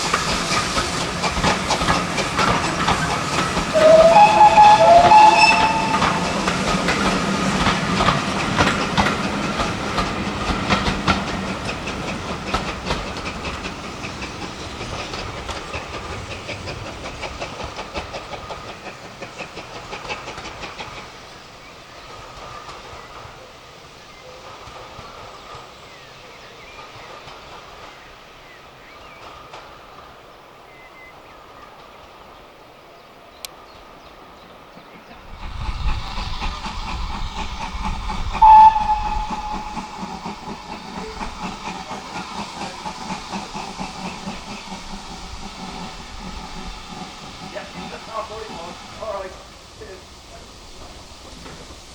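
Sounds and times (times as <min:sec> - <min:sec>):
locomotive exhaust beats: 0:00.0 - 0:16.7, 0:35.4 - 0:48.0
steam hissing: 0:00.0 - 0:30.1, 0:34.5 - 0:51.9
train wheels clicking over rails: 0:00.0 - 0:32.4, 0:33.5 - 0:51.9
steam whistle toot: 0:03.7 - 0:06.7, 0:38.3 - 0:41.4.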